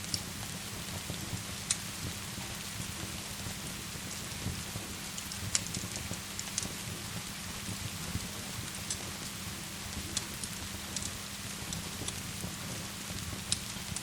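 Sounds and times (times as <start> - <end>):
rain hiss: 0.0 - 14.0
wood fire crackling: 0.0 - 14.0.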